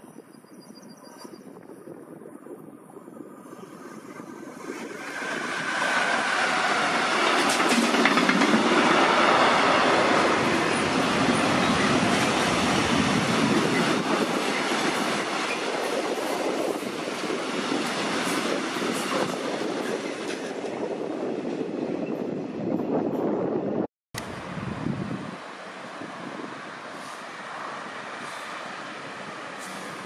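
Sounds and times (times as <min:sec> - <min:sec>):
freight train wheels clattering: 0:05.6 - 0:20.7.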